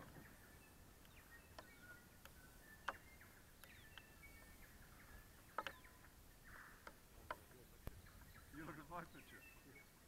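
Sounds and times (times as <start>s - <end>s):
distant bird chirps and whistles: 0.0s - 10.0s
soft clicks: 1.0s - 4.5s, 5.4s - 5.9s.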